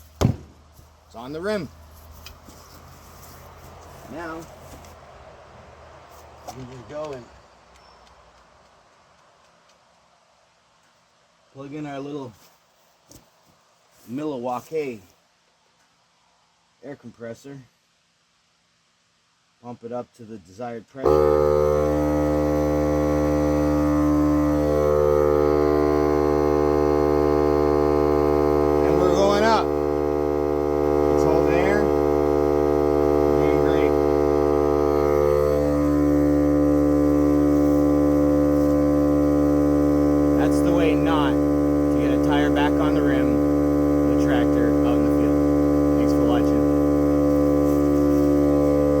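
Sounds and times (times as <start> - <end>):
air compressor motor hum: 21.1 - 49.0.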